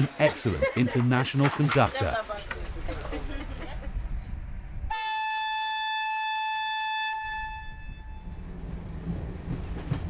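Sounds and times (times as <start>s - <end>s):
train air horn blast: 4.9s - 8.3s.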